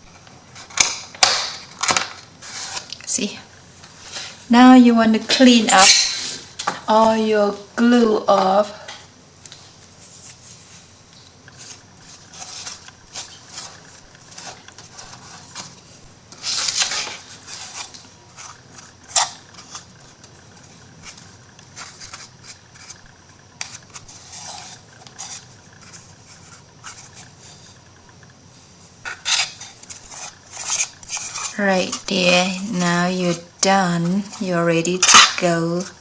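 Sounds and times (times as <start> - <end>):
scraping and rubbing on wood: 11.5 - 27.8, 29.0 - 36.0.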